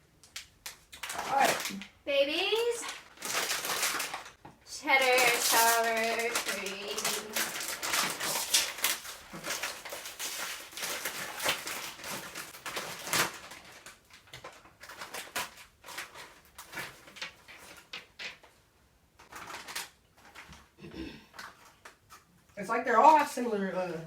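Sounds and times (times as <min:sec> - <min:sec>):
foil bag crinkling: 0:00.2 - 0:18.6, 0:19.2 - 0:22.3
chips crunching: 0:00.3 - 0:01.9, 0:02.6 - 0:17.9.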